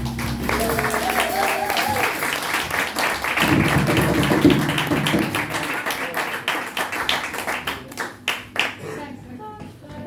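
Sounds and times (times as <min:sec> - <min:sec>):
band music: 0:00.0 - 0:06.0
hand clapping: 0:00.0 - 0:08.8.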